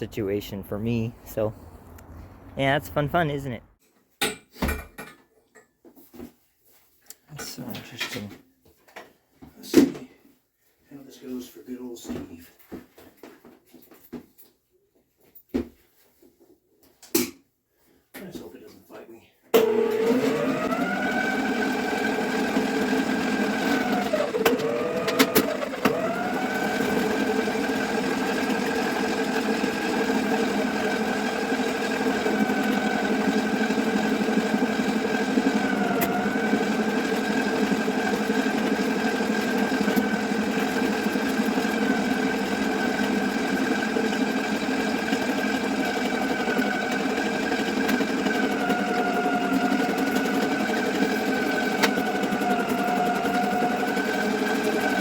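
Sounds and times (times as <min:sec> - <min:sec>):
drain-cleaning machine running: 0:19.6 - 0:55.0.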